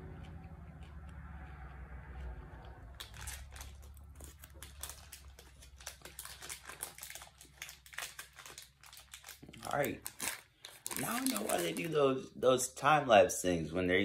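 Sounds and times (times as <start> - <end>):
steady low hum: 0.0 - 4.6
candy crunching while chewing: 0.0 - 12.0.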